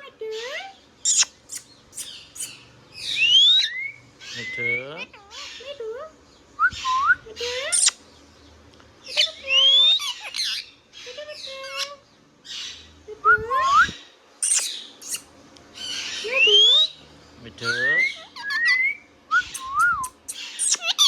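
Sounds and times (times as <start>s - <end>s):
parakeet squawking and whistling: 1.0s - 5.8s, 6.7s - 8.0s, 9.1s - 12.9s, 13.5s - 17.0s, 17.6s - 21.0s.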